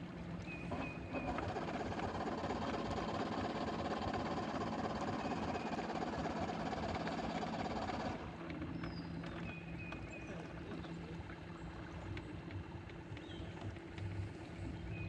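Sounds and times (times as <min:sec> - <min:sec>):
outboard motor running: 0:00.0 - 0:15.0
birds chirping: 0:08.6 - 0:15.0.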